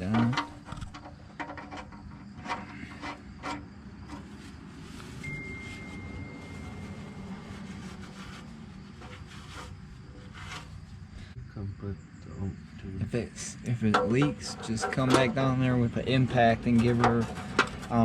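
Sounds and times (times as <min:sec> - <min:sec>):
low steady hum: 0:00.0 - 0:18.0
thin high tone: 0:05.0 - 0:08.6.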